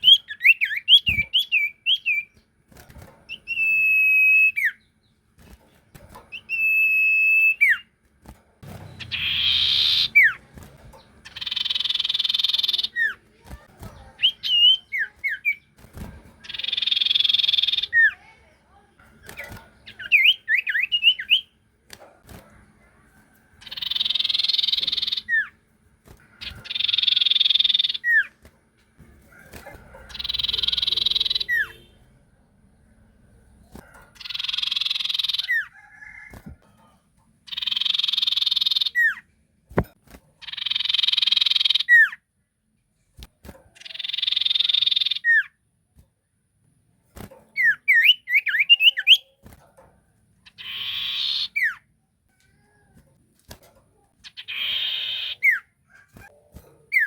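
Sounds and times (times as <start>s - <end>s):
bird singing buzzy rattling phrases: 8.6s - 21.9s, 22.5s - 35.8s, 37.4s - 39.6s, 40.4s - 42.2s, 43.0s - 45.5s, 47.4s - 49.4s, 50.0s - 52.0s, 53.8s - 57.0s.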